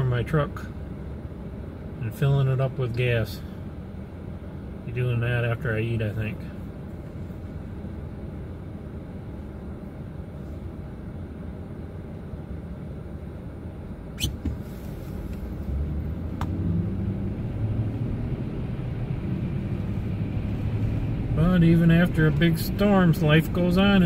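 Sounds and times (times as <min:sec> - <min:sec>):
truck engine and tyre rumble: 0:00.0 - 0:24.0
short high chirp: 0:14.2 - 0:14.4.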